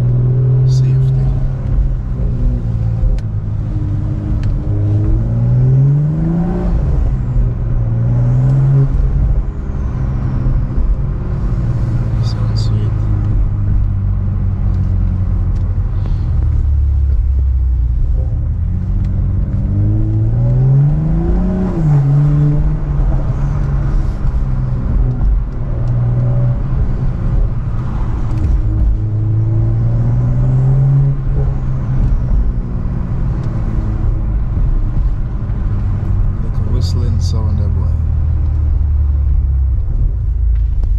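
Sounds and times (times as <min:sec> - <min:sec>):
car engine accelerating: 0:00.0 - 0:40.9.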